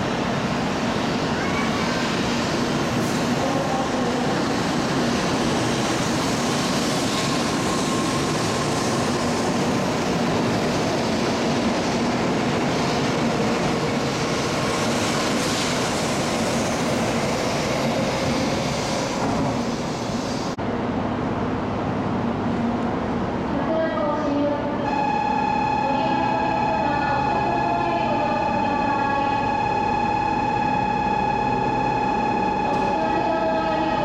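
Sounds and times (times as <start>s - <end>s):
station ambience: 0.0s - 34.0s
train rushing and rumbling: 0.0s - 34.0s.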